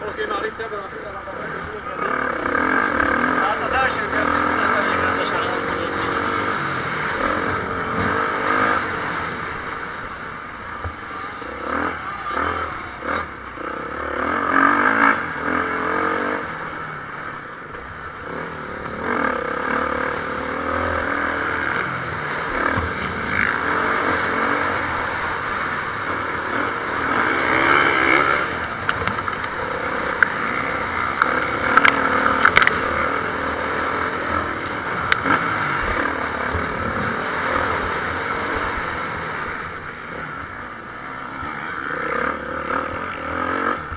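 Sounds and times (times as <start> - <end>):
motocross bike engines revving: 0.0 - 43.9.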